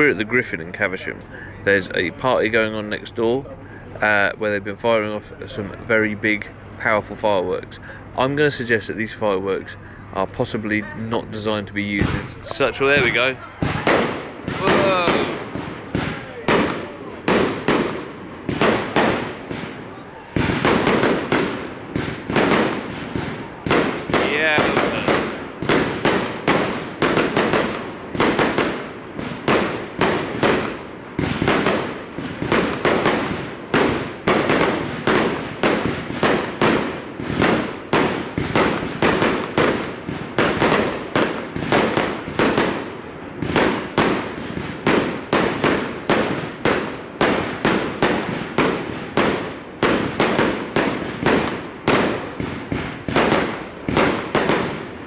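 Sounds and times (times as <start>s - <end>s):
aerial firework bangs: 11.9s - 19.8s, 20.4s - 54.8s.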